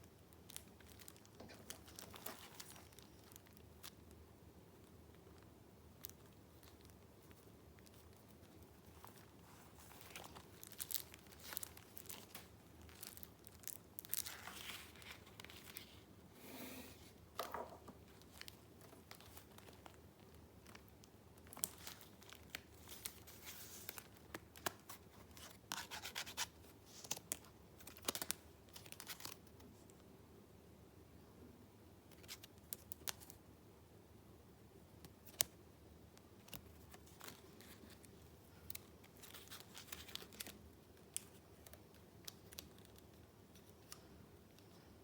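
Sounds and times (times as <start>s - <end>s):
paper rustling and crinkling: 0.5s - 4.0s, 6.1s - 16.1s, 16.8s - 29.6s, 36.4s - 44.0s.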